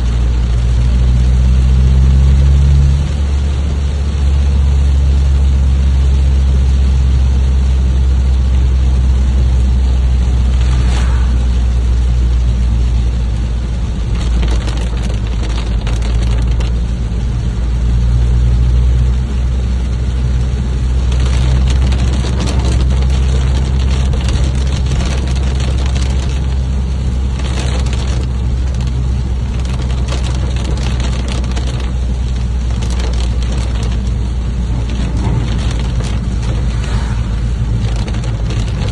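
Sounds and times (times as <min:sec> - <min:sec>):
deep rumble: 0:00.0 - 0:38.9
rain hissing: 0:00.0 - 0:38.9
crackling gusts: 0:09.2 - 0:18.2, 0:19.3 - 0:38.9.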